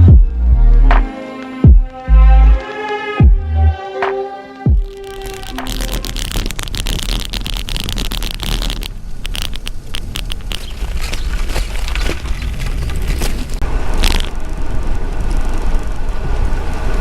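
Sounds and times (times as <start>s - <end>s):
tyre and road noise: 0.0s - 17.0s
bike rattles: 4.8s - 17.0s
wind buffeting microphone: 6.1s - 17.0s.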